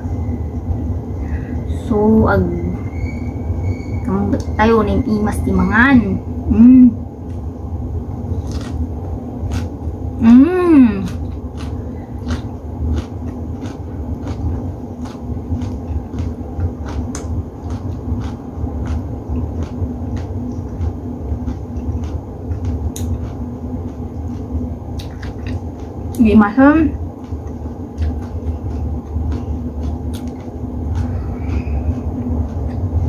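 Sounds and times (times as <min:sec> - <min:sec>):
steady low hum: 0:00.0 - 0:33.0
close chewing: 0:08.4 - 0:08.8, 0:09.4 - 0:10.0, 0:11.0 - 0:26.3, 0:27.0 - 0:33.0
person humming: 0:10.2 - 0:11.2
wet mouth clicks: 0:23.0 - 0:23.3, 0:25.0 - 0:25.6, 0:29.4 - 0:32.0.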